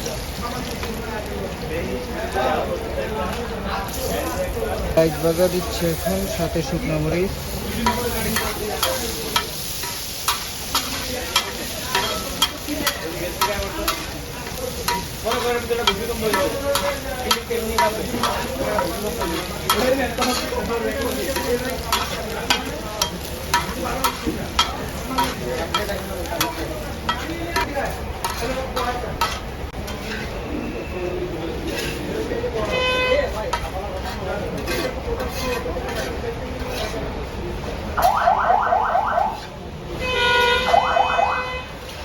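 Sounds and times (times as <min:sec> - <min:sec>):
chillies sizzling in hot oil: 0:00.0 - 0:38.6
metal spatula clacking on pan: 0:07.7 - 0:30.3, 0:33.5 - 0:37.0.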